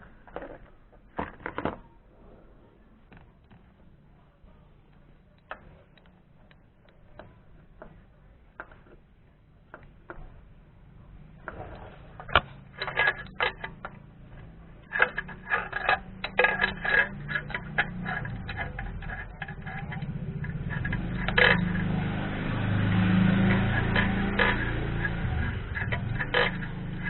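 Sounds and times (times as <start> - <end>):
low mechanical hum: 0.0 - 27.0
metallic hand tool clatter: 11.4 - 27.0.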